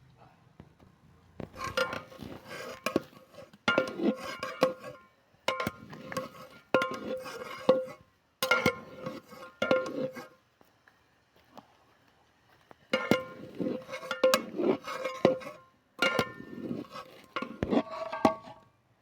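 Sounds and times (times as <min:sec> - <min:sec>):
metal utensils clanging on pots: 0:01.6 - 0:10.3, 0:12.9 - 0:18.6.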